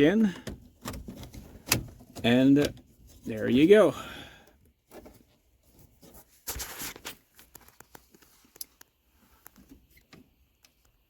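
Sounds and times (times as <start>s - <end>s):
small handling clicks and knocks: 0.2s - 3.3s.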